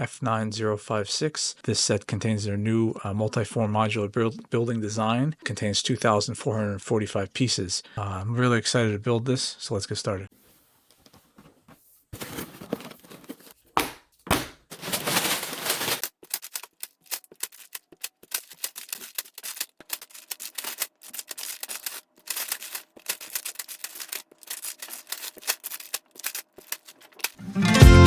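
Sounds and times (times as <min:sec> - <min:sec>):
plastic bags rustling: 0:12.2 - 0:27.4
plastic packaging clicking and crackling: 0:14.4 - 0:27.4.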